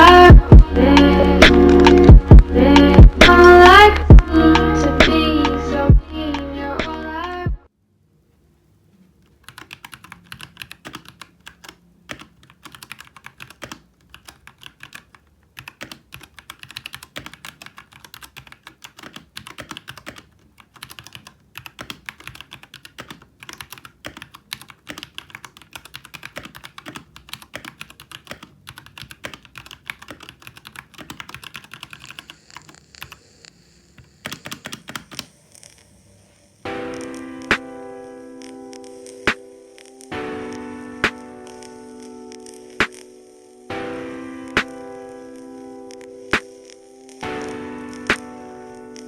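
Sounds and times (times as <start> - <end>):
mechanical keyboard typing: 9.3 - 37.2.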